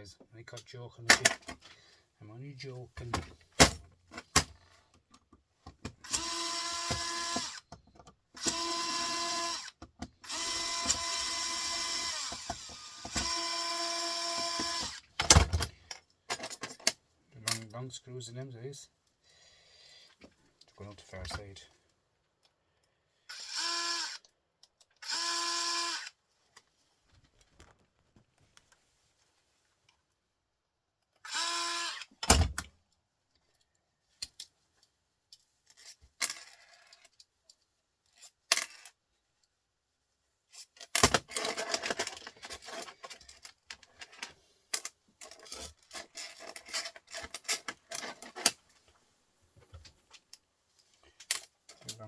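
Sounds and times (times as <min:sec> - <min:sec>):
power drill whirring: 0:06.0 - 0:07.6, 0:08.4 - 0:15.0, 0:23.3 - 0:24.2, 0:25.0 - 0:26.2, 0:31.2 - 0:32.1
small metal parts clinking: 0:35.7 - 0:37.2, 0:38.1 - 0:39.0, 0:40.5 - 0:48.6.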